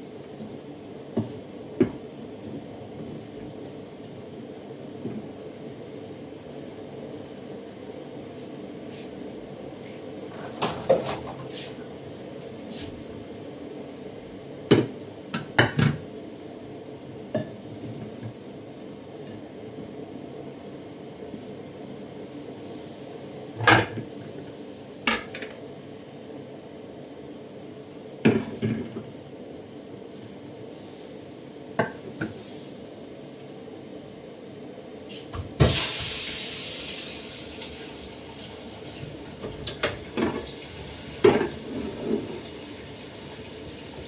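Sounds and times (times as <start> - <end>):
pots and pans clinking: 10.4 - 11.5, 41.2 - 42.4.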